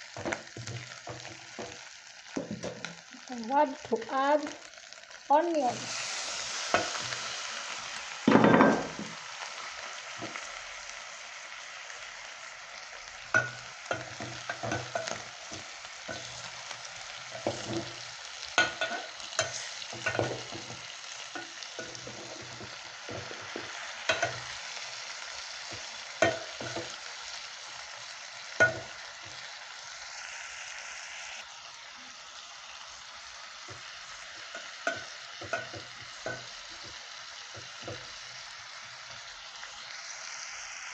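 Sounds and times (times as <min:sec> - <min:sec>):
chicken and onions sizzling: 0:00.0 - 0:40.9
spoon scraping a pot: 0:13.3 - 0:16.6, 0:17.3 - 0:24.6.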